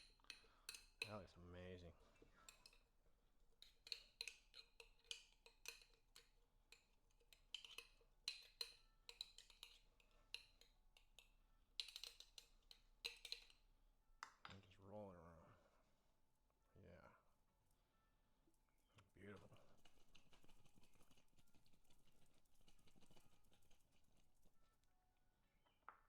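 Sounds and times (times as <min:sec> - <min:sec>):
utensil tapping against bowl: 0:00.0 - 0:01.2, 0:02.4 - 0:02.8, 0:03.6 - 0:13.6, 0:19.4 - 0:24.5.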